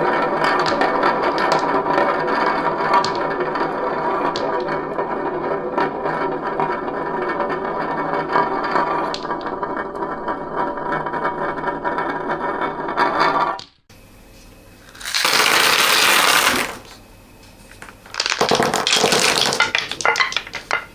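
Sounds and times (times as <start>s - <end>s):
beads rattling down a marble run: 14.9s - 17.0s, 18.0s - 20.9s.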